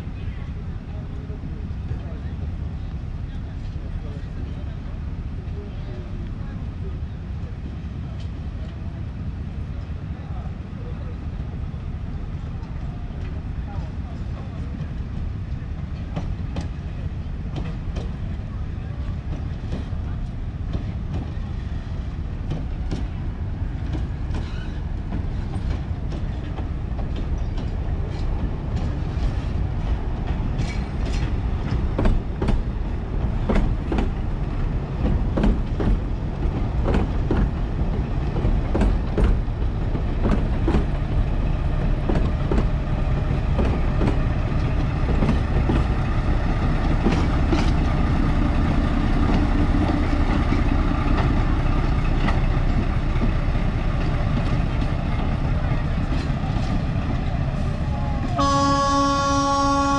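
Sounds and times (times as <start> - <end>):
diesel locomotive engine running: 0.0 - 59.9
train wheels clicking over rail joints: 12.6 - 18.4, 19.0 - 58.8.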